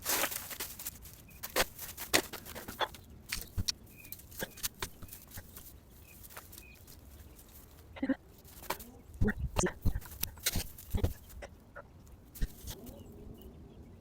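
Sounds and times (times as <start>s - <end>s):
rake scraping through debris: 0.0s - 7.8s, 9.8s - 11.3s.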